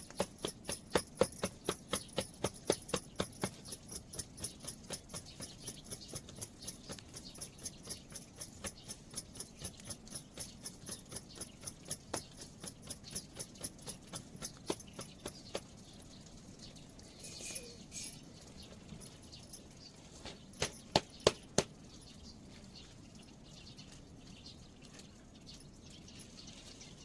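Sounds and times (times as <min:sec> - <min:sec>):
rapid even clicking: 0:00.0 - 0:15.7, 0:20.5 - 0:21.8.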